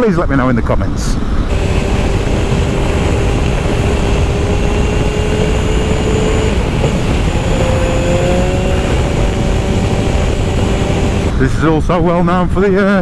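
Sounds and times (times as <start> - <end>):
wind rush on microphone: 1.2 - 12.0
motorcycle engine running: 1.5 - 11.4.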